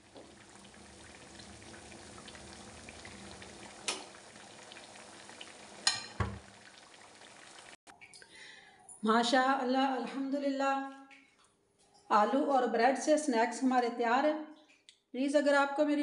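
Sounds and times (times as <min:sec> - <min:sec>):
food sizzling in hot oil: 0:00.0 - 0:07.8.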